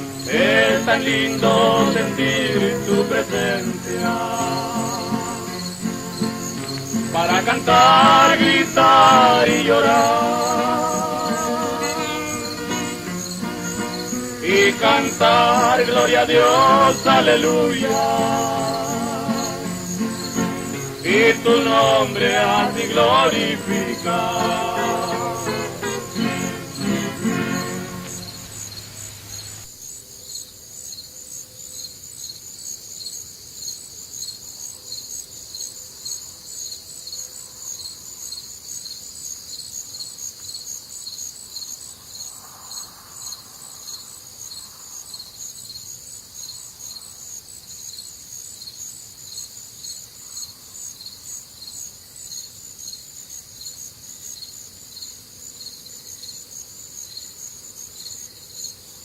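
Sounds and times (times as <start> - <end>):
hymn singing with music: 0.0 - 29.2
cricket chirping: 0.0 - 59.0.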